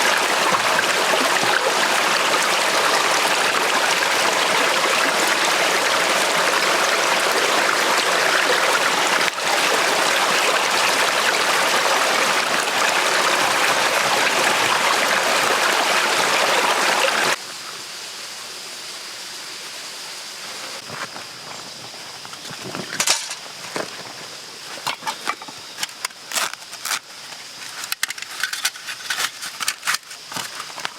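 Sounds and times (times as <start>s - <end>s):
forest stream flowing: 0.0s - 30.9s.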